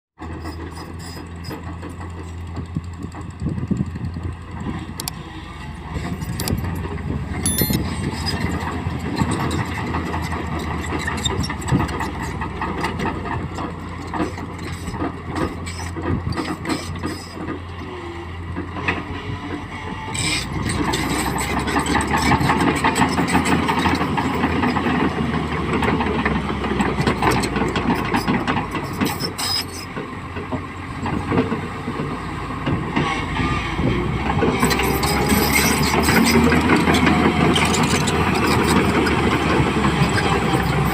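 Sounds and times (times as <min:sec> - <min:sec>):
excavator diesel engine: 0:00.2 - 0:40.9
short metal clanks: 0:06.2 - 0:08.4.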